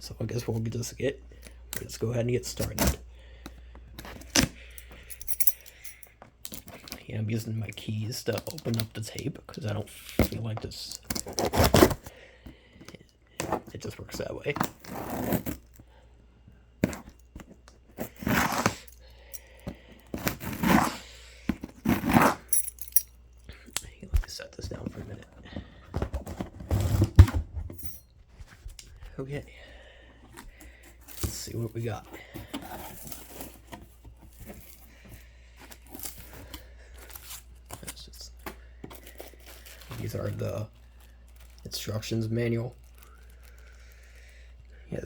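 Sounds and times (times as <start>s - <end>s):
rummaging through cardboard packaging: 6.2s - 15.8s, 24.5s - 29.3s, 29.9s - 44.2s
packing tape tearing: 10.0s - 12.1s, 14.6s - 15.8s, 16.8s - 18.9s, 20.1s - 22.5s, 35.6s - 38.0s
cardboard scraping: 11.1s - 12.1s, 13.4s - 13.8s, 14.5s - 15.7s, 16.8s - 18.9s, 20.1s - 22.5s, 24.7s - 27.6s, 30.3s - 34.9s.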